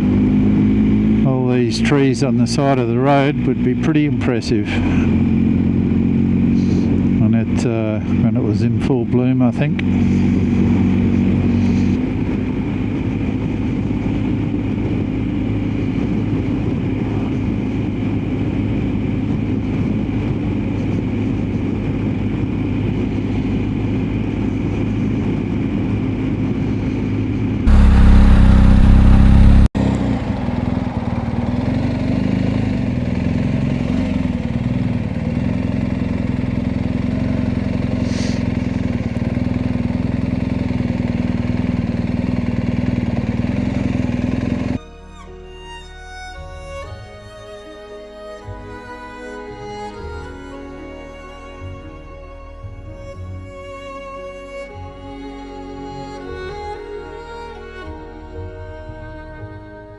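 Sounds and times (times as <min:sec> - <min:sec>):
road and wind noise: 0:00.0 - 0:44.8
motorcycle engine running: 0:00.0 - 0:44.9
loud rumble: 0:27.7 - 0:33.3.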